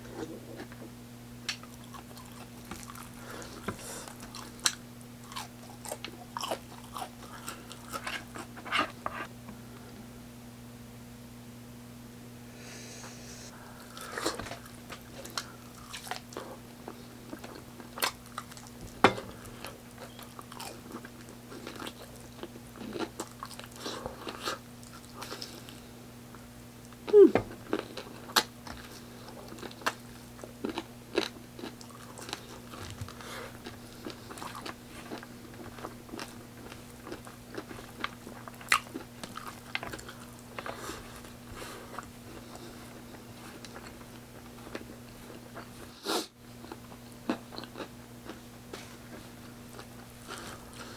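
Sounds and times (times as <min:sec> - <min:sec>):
low electrical hum: 0:00.0 - 0:50.9
chewing and mouth clicks: 0:01.5 - 0:08.5, 0:13.9 - 0:25.8, 0:26.9 - 0:45.9
person eating crunchy food: 0:01.6 - 0:09.3, 0:13.6 - 0:25.9, 0:26.9 - 0:50.9.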